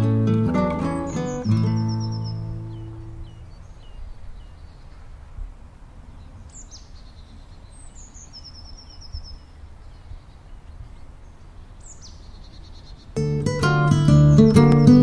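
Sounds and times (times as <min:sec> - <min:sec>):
small birds calling: 0:00.0 - 0:15.0
fast bird trill: 0:00.5 - 0:04.6, 0:11.9 - 0:15.0.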